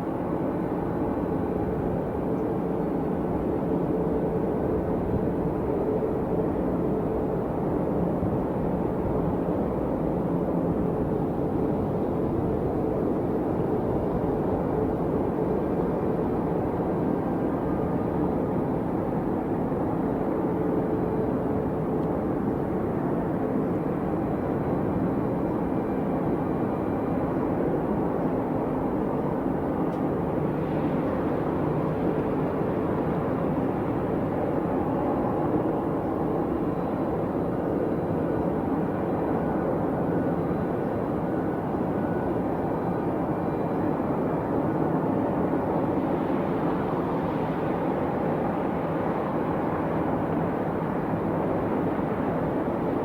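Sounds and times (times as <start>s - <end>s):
jet engines running: 10.8s - 53.0s.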